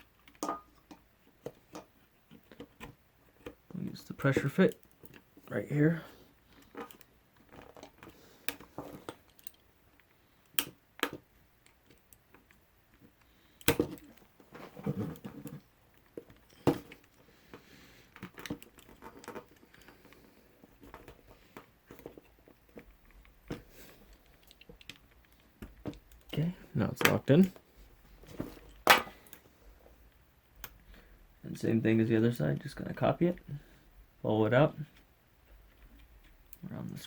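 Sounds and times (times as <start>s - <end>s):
plastic parts clicking and knocking: 0.0s - 5.5s, 6.4s - 27.7s, 28.3s - 29.4s.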